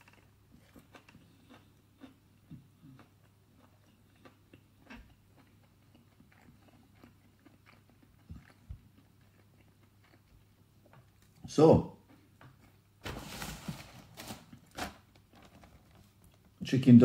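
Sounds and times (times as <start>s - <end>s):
soft crunchy chewing: 0.0s - 12.9s.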